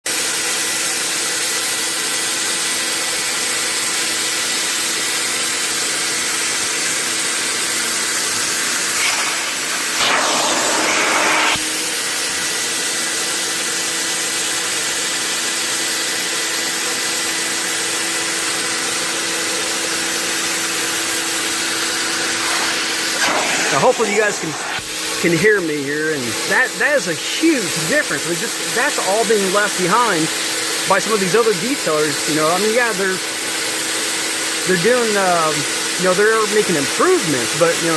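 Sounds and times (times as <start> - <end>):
carpet extractor motor hum: 6.0 - 13.8, 14.4 - 35.0
vacuum wand rushing hiss: 6.4 - 14.3, 18.5 - 37.9.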